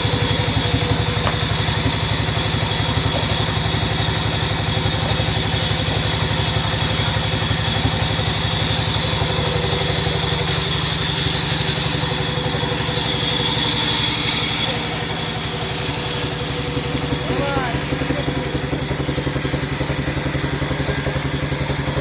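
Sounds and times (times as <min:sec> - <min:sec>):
sawmill machinery pulsing: 0:00.0 - 0:22.0.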